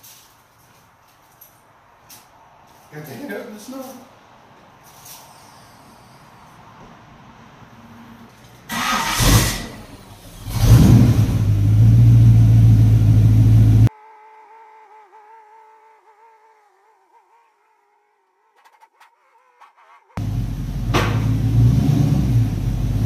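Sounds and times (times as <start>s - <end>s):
car engine starting and running: 8.4s - 13.9s, 19.3s - 23.0s.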